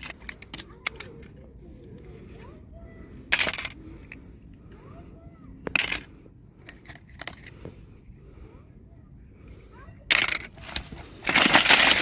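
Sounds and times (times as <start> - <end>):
small plastic pieces clicking: 0.0 - 1.4, 3.3 - 4.2, 5.6 - 7.6, 10.1 - 12.0
packaging crinkling: 10.6 - 12.0.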